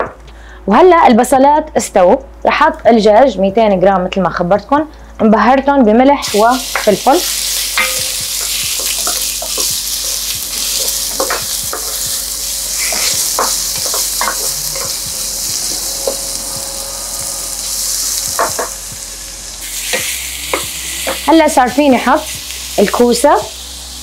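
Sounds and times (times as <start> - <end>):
chicken sizzling in a pot: 6.2 - 24.0.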